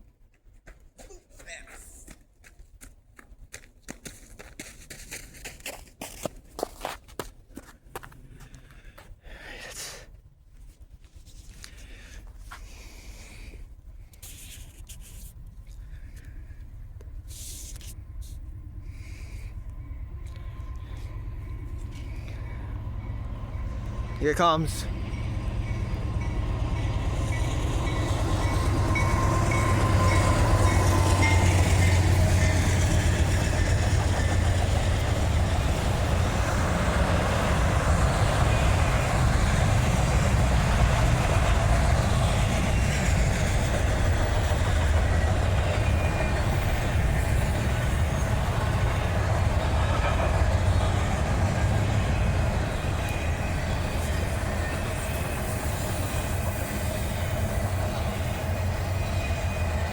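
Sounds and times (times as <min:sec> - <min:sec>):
diesel locomotive drone: 0:02.4 - 0:59.9
rail cars rumbling and clattering: 0:10.3 - 0:59.9.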